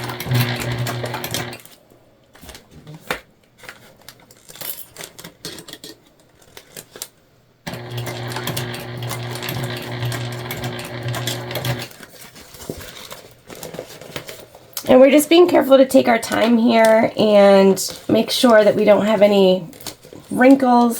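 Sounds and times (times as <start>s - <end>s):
sewing machine motor running: 0.0s - 1.6s, 7.7s - 11.9s
sewing machine clicks: 0.0s - 1.7s, 7.7s - 11.9s.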